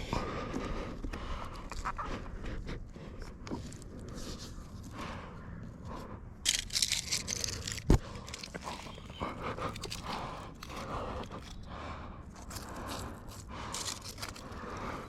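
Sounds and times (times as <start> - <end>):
crackling: 6.0 - 15.0
footsteps crunching on dry leaves: 6.5 - 11.1, 12.4 - 14.8.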